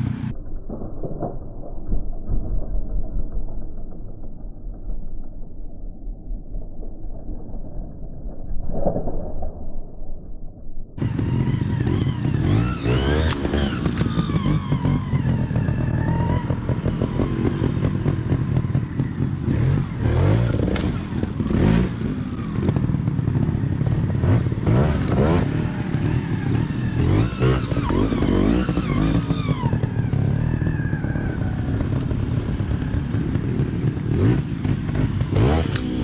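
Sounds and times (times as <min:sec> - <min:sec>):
motorcycle engines revving: 0:00.0 - 0:00.3, 0:11.0 - 0:36.0.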